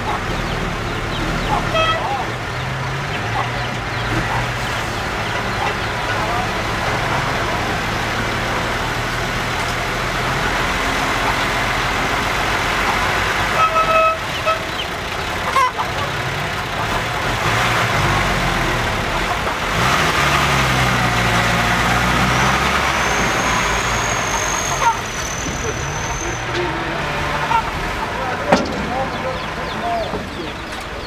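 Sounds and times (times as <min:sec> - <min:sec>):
truck horn toots: 0:00.0 - 0:08.0, 0:12.8 - 0:18.4, 0:19.1 - 0:30.2
diesel truck engine revving: 0:00.0 - 0:31.0.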